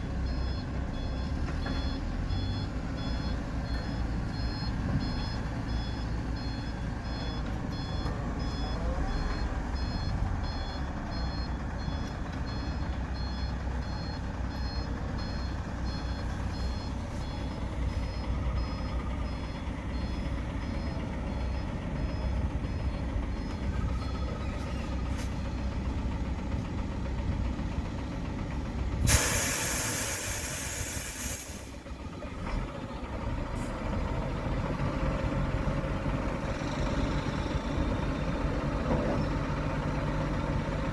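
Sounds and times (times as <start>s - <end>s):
dump truck engine running: 0.0s - 40.9s
reversing alarm beeping: 0.2s - 26.1s
air brakes hissing: 29.0s - 31.9s.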